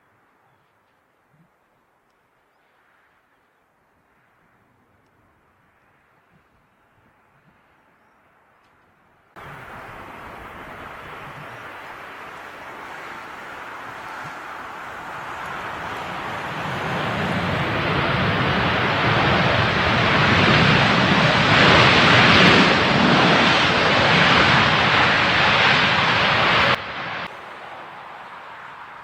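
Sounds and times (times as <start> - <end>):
jet airliner engine noise: 9.4 - 29.0.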